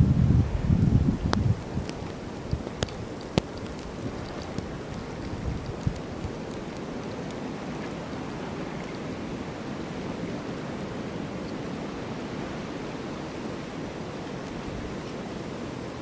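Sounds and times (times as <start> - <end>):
snowstorm wind rushing: 0.0 - 6.4.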